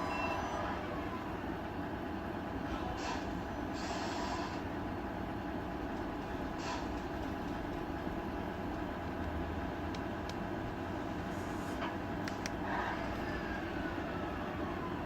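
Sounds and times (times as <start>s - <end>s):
model truck mechanical rumble: 0.9s - 15.0s.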